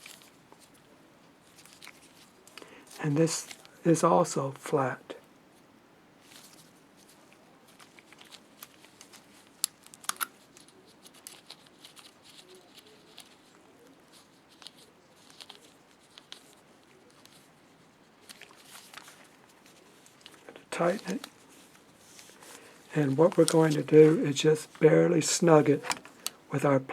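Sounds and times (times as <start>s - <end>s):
faint rustle: 0.0s - 3.9s, 5.5s - 26.6s
light handling noise: 18.2s - 26.5s.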